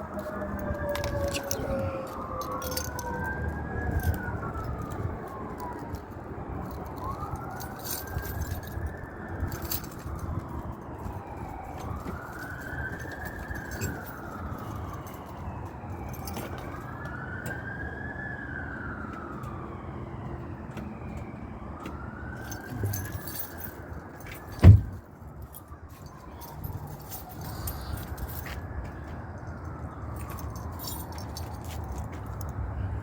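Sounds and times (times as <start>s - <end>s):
siren wailing: 0.0s - 33.0s
sharp thump: 24.6s - 25.0s.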